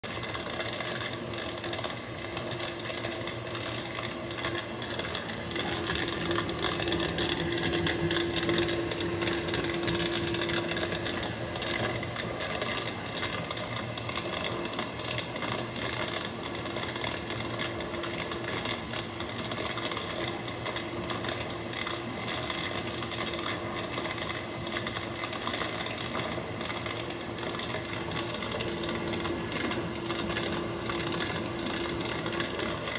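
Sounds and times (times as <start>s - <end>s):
dishwasher grinding: 5.4s - 12.0s.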